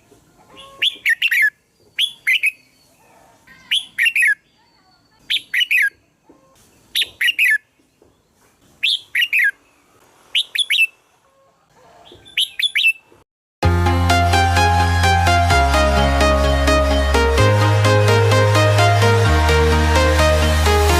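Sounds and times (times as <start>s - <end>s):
bird whistling song: 0.6s - 3.0s, 3.7s - 6.0s, 6.9s - 7.6s, 8.8s - 9.6s, 10.3s - 11.0s, 12.1s - 13.1s
electronic music: 13.6s - 20.9s.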